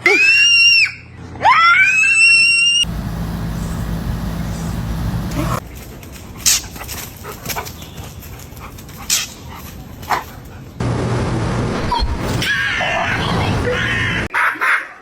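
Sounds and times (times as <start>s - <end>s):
low hum: 2.8s - 5.6s.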